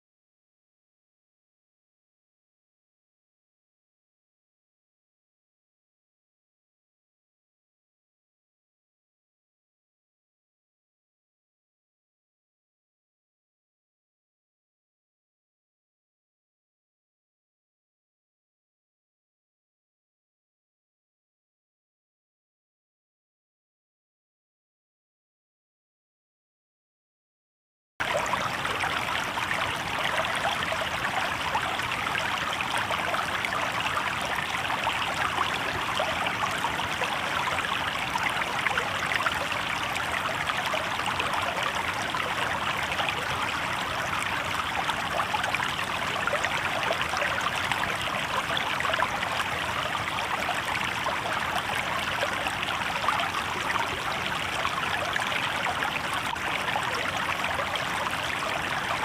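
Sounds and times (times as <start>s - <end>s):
river water babbling over rocks: 28.0s - 59.0s.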